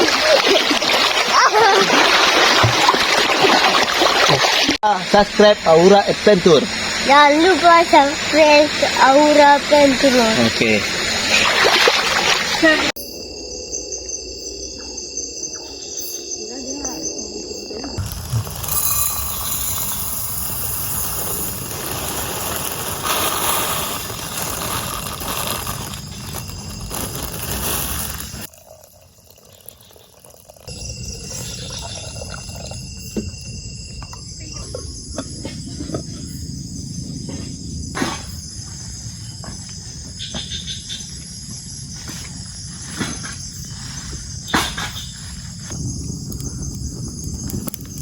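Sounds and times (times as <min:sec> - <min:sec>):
dense steady hiss: 0:04.9 - 0:11.0
insects shrilling: 0:13.0 - 0:34.6.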